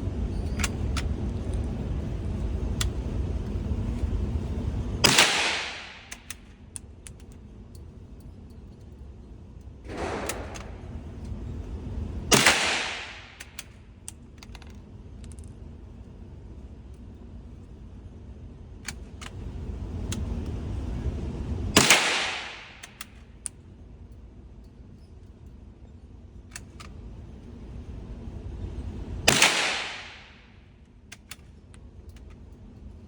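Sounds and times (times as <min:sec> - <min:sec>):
rifle shots echoing: 0:05.0 - 0:06.1, 0:09.9 - 0:10.8, 0:12.3 - 0:13.4, 0:21.8 - 0:22.8, 0:29.3 - 0:30.5
rifle bolt clicks: 0:06.1 - 0:07.4, 0:22.8 - 0:23.6, 0:31.1 - 0:31.5.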